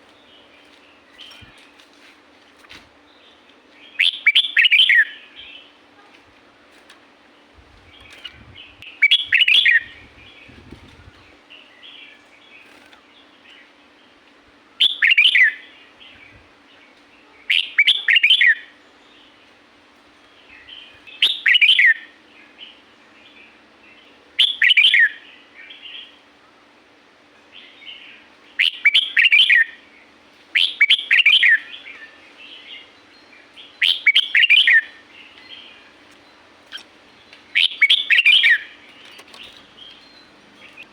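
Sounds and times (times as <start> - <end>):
faint steady hum: 0.0 - 40.9
soft bird chirps: 27.5 - 40.9.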